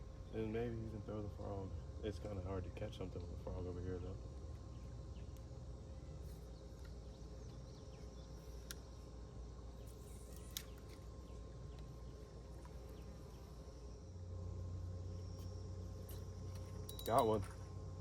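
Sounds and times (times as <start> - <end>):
insects droning: 0.0 - 18.0
sharp small clicks: 8.6 - 8.9, 9.8 - 11.1.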